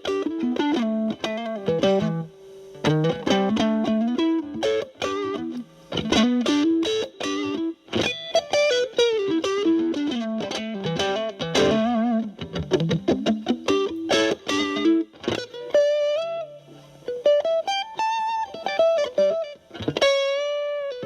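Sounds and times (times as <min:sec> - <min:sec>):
distorted electric guitar lead: 0:00.0 - 0:21.0.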